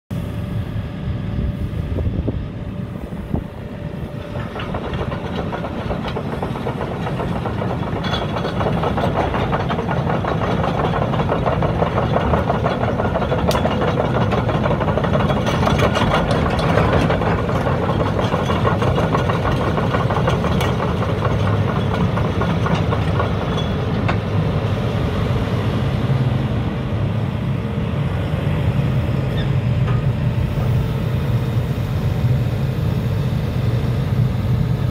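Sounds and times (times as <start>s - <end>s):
excavator diesel engine running: 0.2s - 34.9s
dense mechanical clatter: 3.4s - 24.8s.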